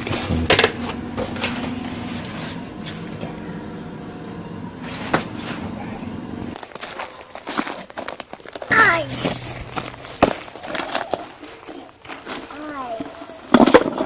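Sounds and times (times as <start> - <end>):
low mechanical hum: 0.0 - 6.6.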